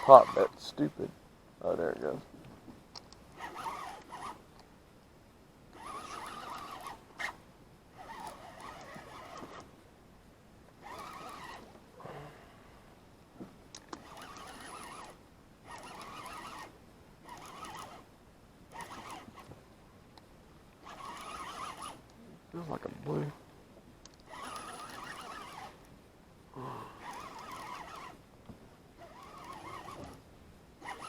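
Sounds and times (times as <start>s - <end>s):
fishing reel being cranked: 0.0s - 0.5s, 3.0s - 4.4s, 5.8s - 7.4s, 8.0s - 9.7s, 10.8s - 11.7s, 13.8s - 18.1s, 18.7s - 19.5s, 20.8s - 22.1s, 24.1s - 25.8s, 27.0s - 28.2s, 29.0s - 30.2s.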